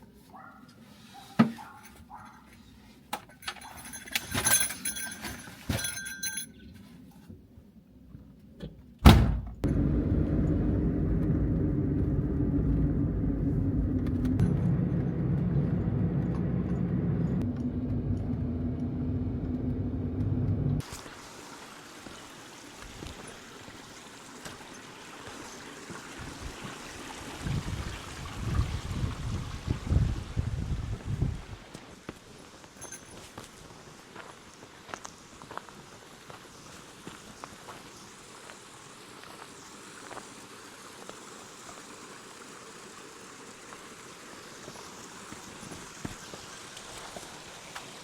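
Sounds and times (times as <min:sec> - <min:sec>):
mountain stream rushing: 0:20.8 - 0:29.8, 0:33.6 - 0:48.0
wind buffeting microphone: 0:27.4 - 0:31.6.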